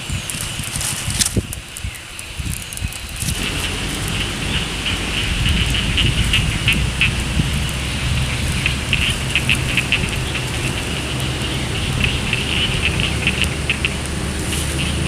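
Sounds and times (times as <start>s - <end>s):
steady rain falling: 0.0s - 15.0s
low rumble: 3.2s - 15.0s.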